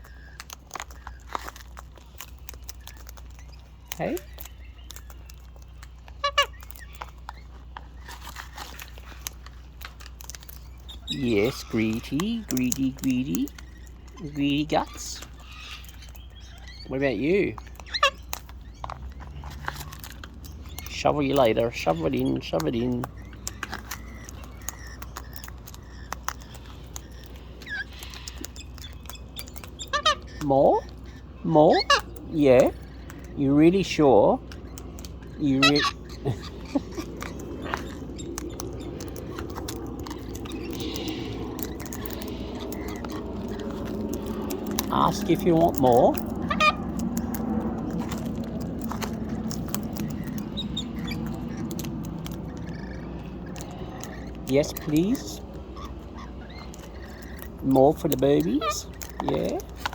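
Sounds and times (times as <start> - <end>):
bird squeak: 0.0 - 59.9
cockatoo cracking seed: 0.0 - 59.9
low steady hum: 0.0 - 59.9
beak cracking seed: 34.4 - 59.9.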